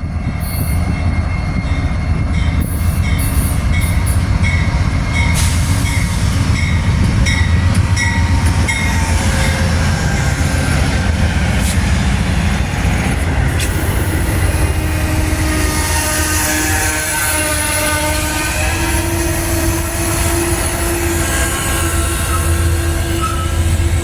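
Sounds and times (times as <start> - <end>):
train rumbling past: 0.0 - 24.0
high wheel squeal: 5.2 - 24.0.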